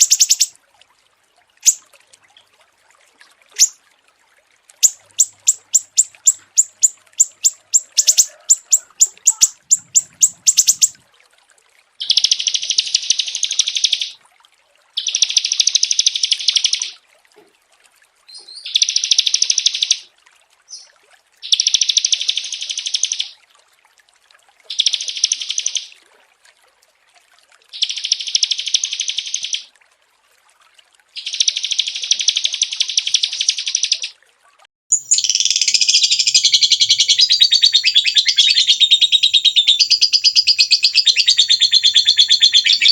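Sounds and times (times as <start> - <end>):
songbird buzzy trilled phrases: 0.0 - 0.5, 3.6 - 3.8, 4.8 - 11.0, 34.9 - 42.9
songbird chirps: 0.0 - 0.6, 1.6 - 1.8, 3.5 - 3.8, 4.8 - 11.0, 12.0 - 14.2, 18.3 - 20.1, 24.7 - 26.0, 27.8 - 29.7, 31.2 - 34.1, 34.9 - 42.9.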